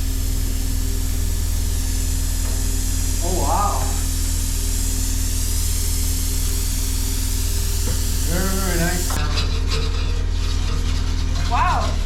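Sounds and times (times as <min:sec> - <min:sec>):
plasma cutter hissing: 0:00.0 - 0:09.3
constant low hum: 0:00.0 - 0:12.0.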